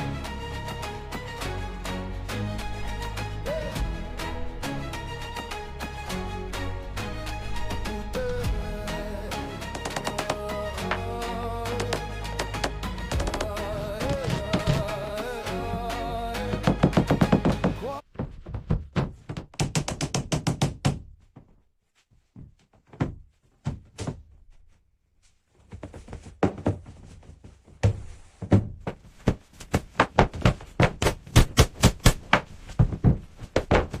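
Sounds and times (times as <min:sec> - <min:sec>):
song: 0:00.0 - 0:18.0
sharp knocks and taps: 0:16.6 - 0:17.8, 0:19.3 - 0:21.0.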